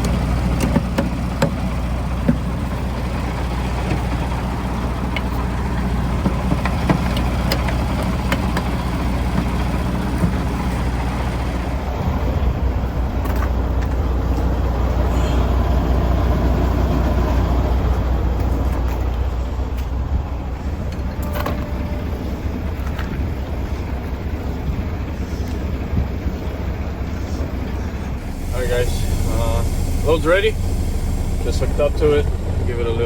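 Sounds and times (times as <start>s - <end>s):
diesel truck engine running: 0.0s - 33.0s.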